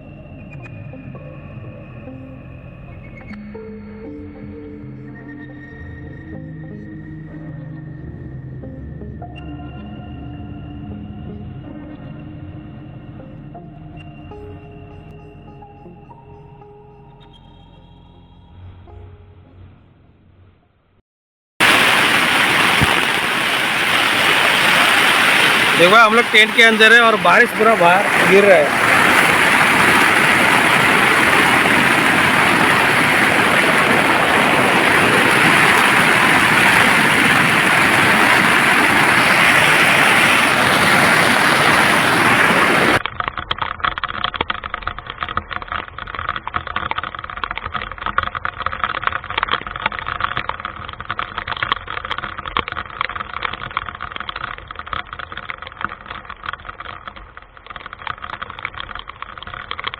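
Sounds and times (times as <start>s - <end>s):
heavy rain drumming on tent: 21.6s - 59.9s
crackle of small ticks: 43.0s - 59.9s.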